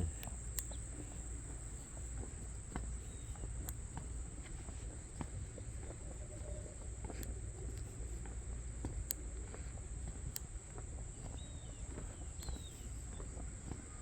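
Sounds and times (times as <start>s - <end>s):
sharp clicks: 0.0s - 2.1s, 2.7s - 4.0s, 7.1s - 13.3s
insects trilling: 0.0s - 14.0s.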